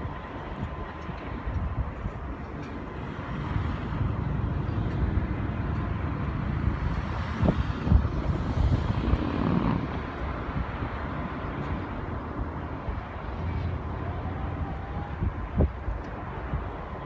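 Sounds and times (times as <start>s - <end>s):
heavy vehicle rumbling past: 3.0s - 10.4s.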